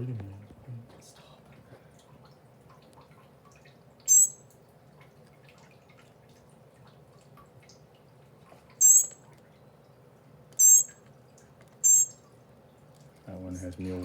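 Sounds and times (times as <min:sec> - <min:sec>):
baby bird begging calls: 0:04.1 - 0:04.4, 0:08.8 - 0:09.2, 0:10.6 - 0:11.0, 0:11.8 - 0:12.2.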